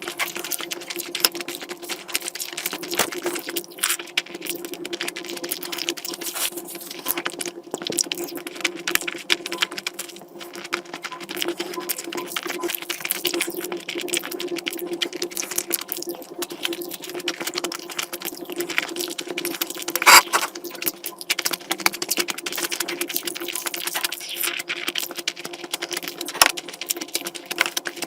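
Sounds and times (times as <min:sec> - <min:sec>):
person chewing with wet mouth sounds: 0:00.0 - 0:28.0.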